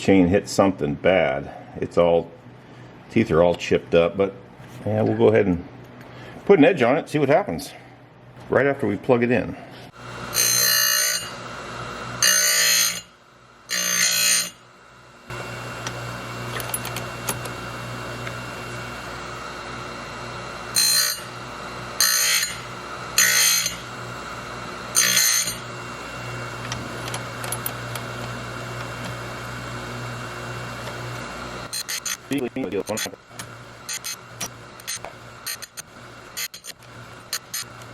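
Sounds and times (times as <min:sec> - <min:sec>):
sharpener motor humming: 0:09.9 - 0:37.9
grinding wheel screeching: 0:24.9 - 0:28.0, 0:31.6 - 0:37.9.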